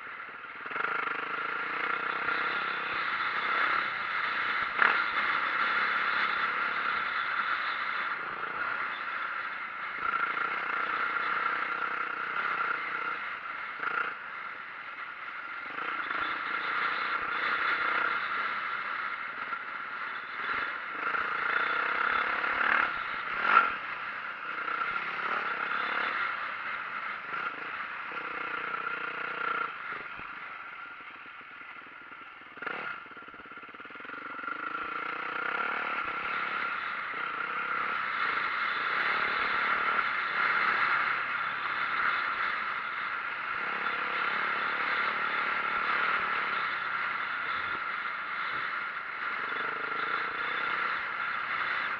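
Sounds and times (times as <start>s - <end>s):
dirt bike engine running: 0.0s - 51.9s.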